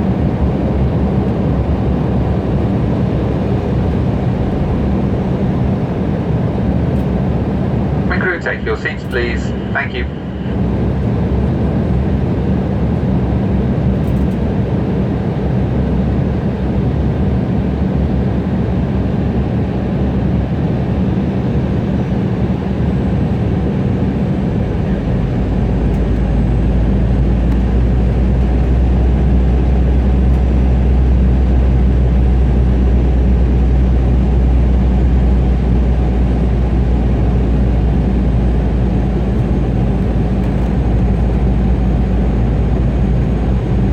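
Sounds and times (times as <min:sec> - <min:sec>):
airliner cabin noise: 0:00.0 - 0:17.4, 0:18.2 - 0:43.9
deep rumble: 0:01.2 - 0:11.8.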